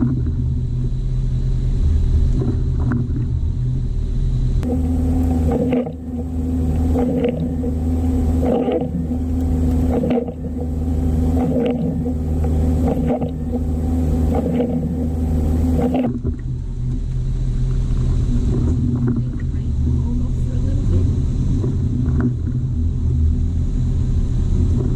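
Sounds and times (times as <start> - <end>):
car engine idling: 0.0 - 24.9.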